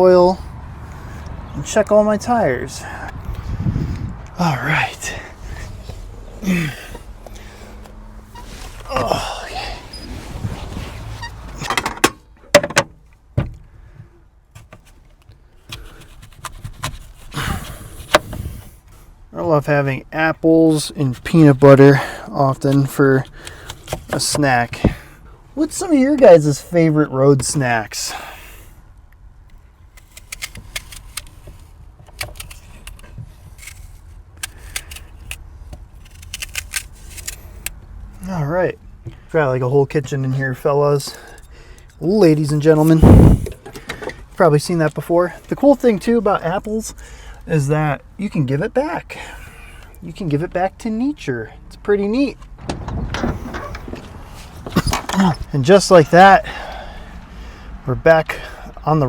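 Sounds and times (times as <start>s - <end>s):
handling clicks and knocks: 11.5s - 13.7s, 29.5s - 37.8s.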